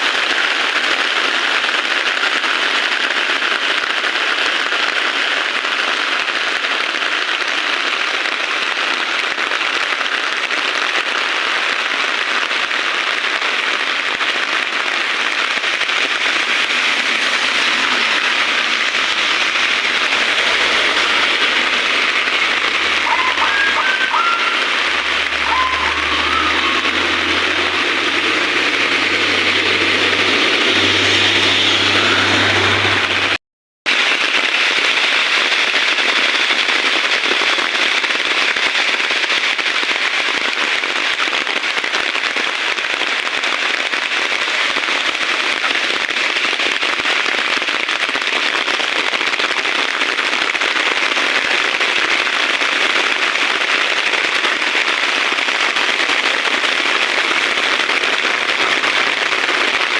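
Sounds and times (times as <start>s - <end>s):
heavy rain falling: 0.0s - 59.9s
low hum: 16.1s - 33.4s.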